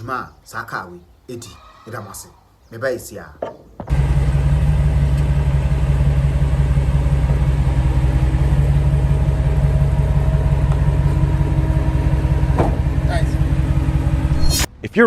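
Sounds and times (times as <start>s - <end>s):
car engine idling: 3.8s - 14.5s.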